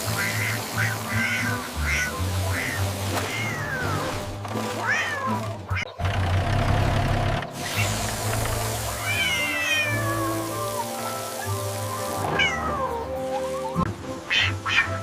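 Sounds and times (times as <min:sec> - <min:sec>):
background music: 0:00.0 - 0:15.0
cat meowing: 0:00.4 - 0:04.1, 0:09.0 - 0:10.4, 0:12.3 - 0:13.1, 0:14.3 - 0:15.0.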